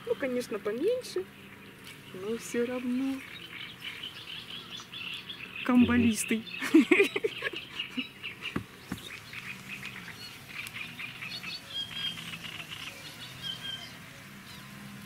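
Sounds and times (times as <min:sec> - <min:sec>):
small birds chirping: 0:00.0 - 0:15.0
faint low hum: 0:05.6 - 0:06.5.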